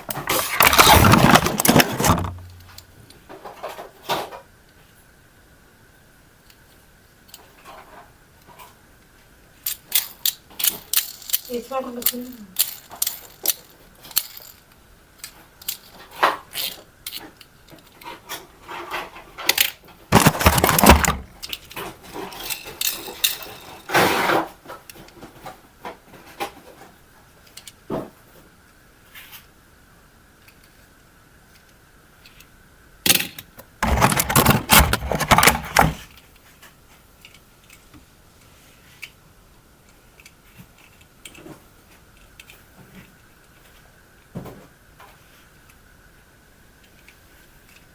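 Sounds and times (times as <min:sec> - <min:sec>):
packaging rustling: 0:00.0 - 0:02.8, 0:20.1 - 0:21.8, 0:33.6 - 0:36.1
toy handling clicks and taps: 0:09.7 - 0:14.6.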